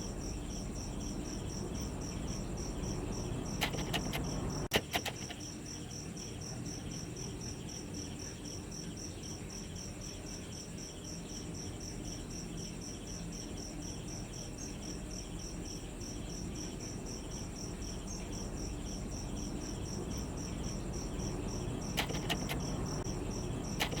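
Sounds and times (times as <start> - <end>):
insect chirping: 0.0 - 24.0
sharp clicks: 3.6 - 5.4, 21.9 - 23.0, 23.7 - 24.0.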